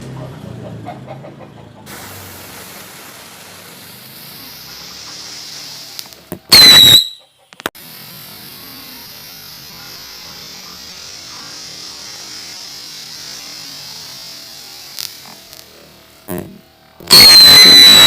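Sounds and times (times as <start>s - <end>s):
firework hissing: 1.9s - 7.1s, 7.7s - 18.0s
loud firework whistle: 6.5s - 7.3s, 17.0s - 18.0s.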